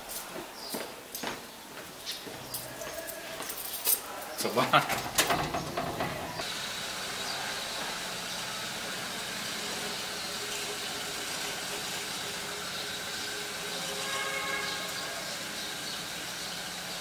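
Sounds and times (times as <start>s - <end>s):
clicks and knocks: 4.8s - 6.4s
car engine idling: 4.9s - 17.0s.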